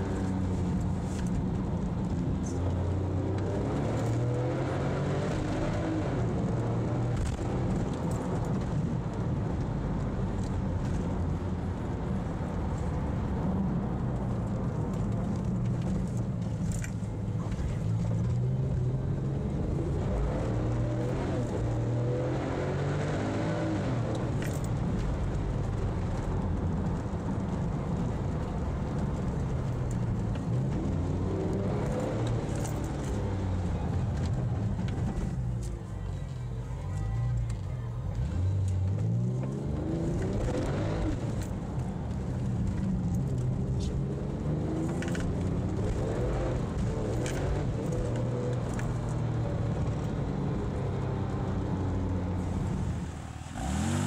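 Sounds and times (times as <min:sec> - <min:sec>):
car engine revving under load: 0:38.2 - 0:54.0.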